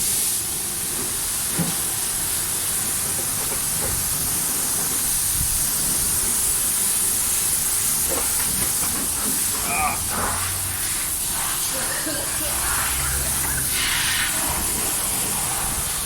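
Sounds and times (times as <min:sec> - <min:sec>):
pressure washer spray hissing: 0:00.0 - 0:16.0.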